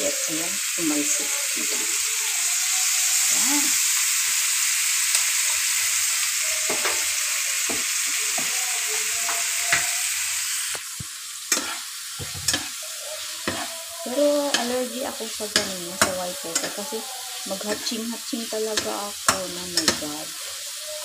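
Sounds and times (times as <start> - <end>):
meat sizzling in a frying pan: 0.0 - 21.0
metal turner scraping and tapping pan: 11.5 - 12.8, 13.4 - 13.7, 15.5 - 16.9, 17.6 - 18.0, 18.7 - 20.1.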